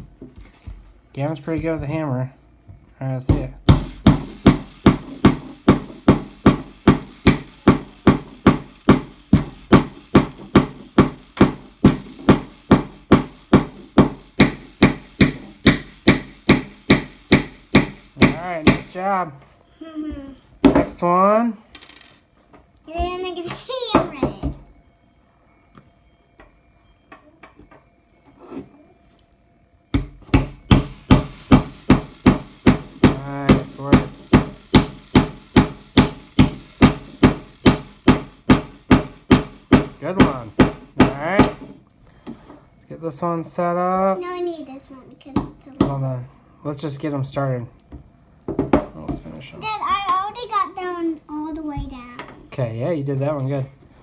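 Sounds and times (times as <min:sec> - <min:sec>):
hammer tapping nail into wood: 0:03.3 - 0:19.0, 0:30.0 - 0:41.7.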